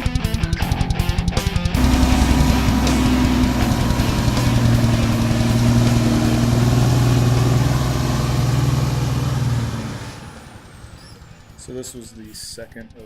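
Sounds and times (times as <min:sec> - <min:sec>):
dump truck diesel engine running: 0:01.8 - 0:12.2.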